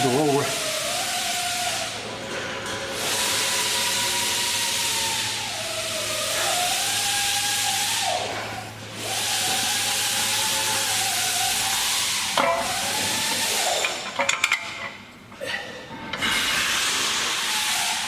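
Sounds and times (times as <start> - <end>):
compressed air hissing: 2.9 - 13.8, 16.2 - 18.0.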